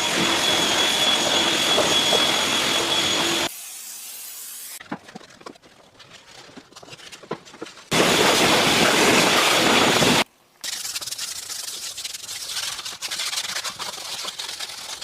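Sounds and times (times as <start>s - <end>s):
scratchy scrubbing: 10.6s - 15.0s.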